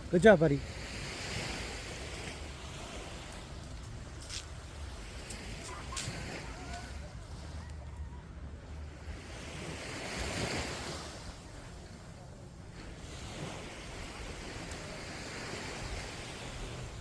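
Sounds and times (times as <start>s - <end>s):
small waves breaking on beach: 0.0s - 17.0s
wind rumbling on microphone: 0.0s - 17.0s.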